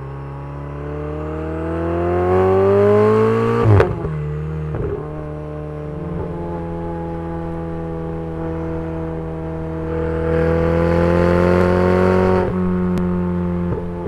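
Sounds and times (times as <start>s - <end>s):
sports car engine accelerating: 0.0s - 14.0s.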